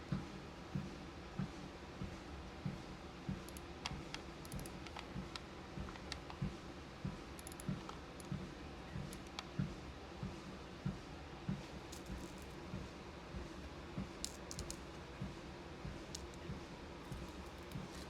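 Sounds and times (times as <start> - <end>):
footsteps on a treadmill: 5.2 - 14.1
beads clicking: 11.9 - 12.5, 14.2 - 15.0, 16.1 - 16.4, 17.1 - 18.0.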